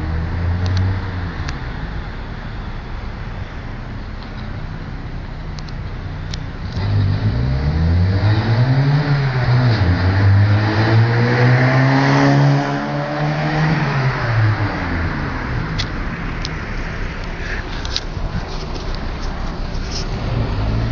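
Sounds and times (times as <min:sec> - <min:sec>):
car accelerating past: 0:06.6 - 0:16.8.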